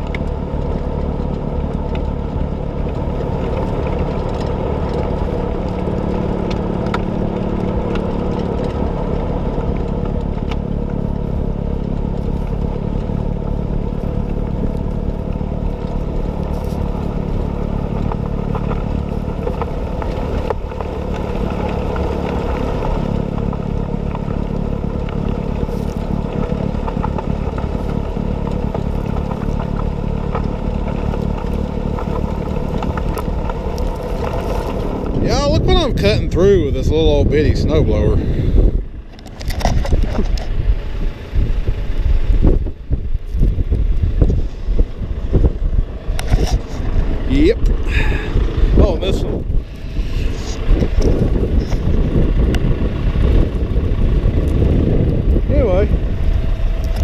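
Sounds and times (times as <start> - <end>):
clicks and clatter: 0.0 - 35.7, 39.0 - 40.6, 46.1 - 47.8, 56.2 - 57.0
snowblower cutting snow: 0.0 - 57.0
tractor diesel engine running: 0.0 - 57.0.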